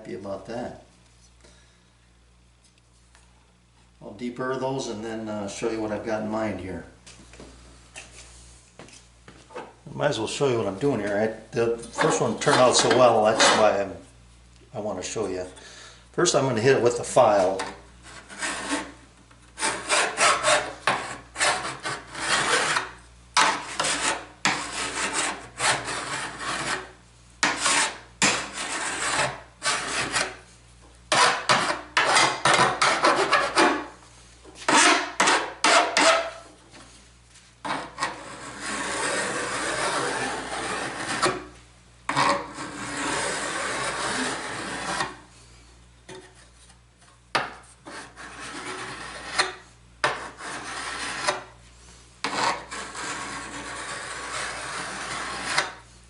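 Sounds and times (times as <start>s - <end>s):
hand file rasping on metal: 17.5s - 19.0s, 19.6s - 30.4s, 37.7s - 41.4s, 42.1s - 45.2s, 47.9s - 51.5s, 52.2s - 55.8s.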